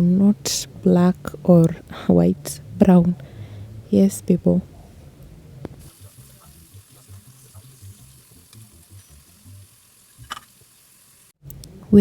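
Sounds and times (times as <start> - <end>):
onions deep frying in hot oil: 5.8 - 11.4.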